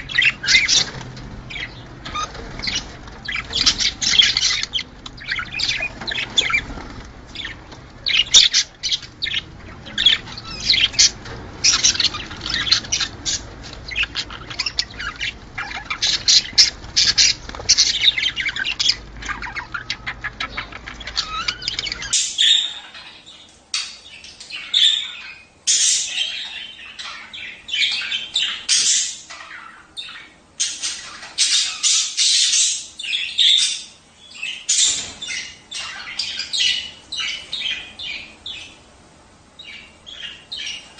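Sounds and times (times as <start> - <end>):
low hum: 0.0 - 22.1
budgerigars chattering: 0.0 - 38.9, 39.6 - 40.9.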